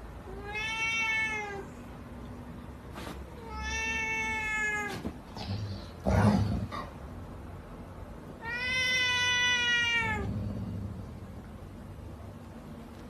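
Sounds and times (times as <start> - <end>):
cat meowing: 0.3 - 1.8, 3.4 - 5.0, 8.4 - 10.3.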